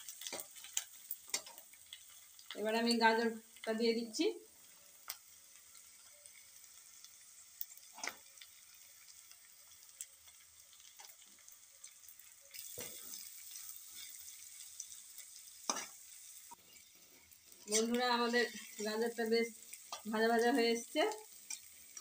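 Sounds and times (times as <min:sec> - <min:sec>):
vegetables sizzling in oil: 0:00.0 - 0:22.0
metal spatula scraping pan: 0:17.7 - 0:19.2.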